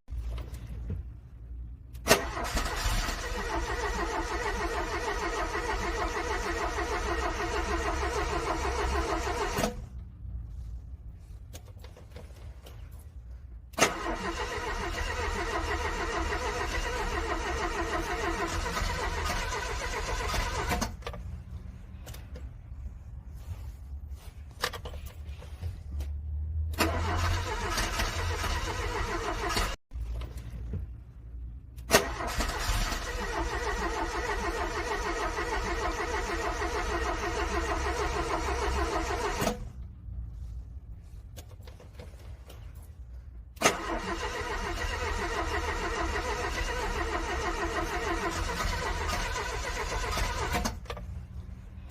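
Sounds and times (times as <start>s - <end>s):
car starter cranking engine: 1.9s - 10.0s, 13.7s - 22.4s, 26.7s - 30.3s, 31.8s - 39.8s, 41.7s - 51.6s.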